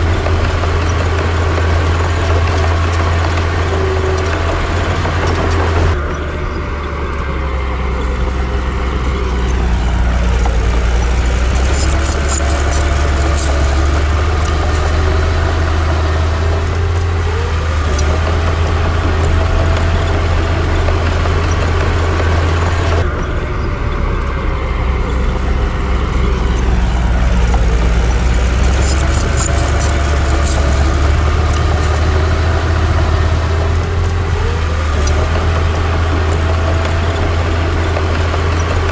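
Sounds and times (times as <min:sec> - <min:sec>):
heavy diesel engine running: 0:00.0 - 0:38.9
light metallic clinks: 0:07.9 - 0:15.9, 0:21.4 - 0:32.5.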